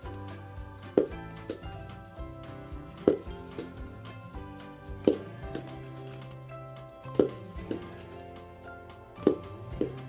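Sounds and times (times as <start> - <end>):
background music: 0.0 - 10.0
rubber ball bouncing: 0.8 - 2.0, 2.9 - 4.2, 5.0 - 6.4, 7.1 - 8.2, 9.2 - 10.0.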